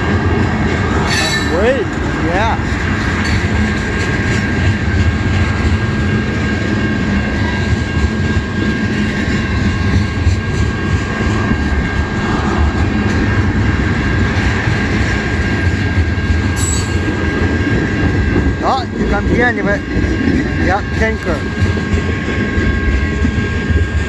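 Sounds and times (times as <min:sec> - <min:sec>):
steel wheels rumbling on rail: 0:00.0 - 0:24.0
thin high ring: 0:01.0 - 0:01.7, 0:16.6 - 0:17.1.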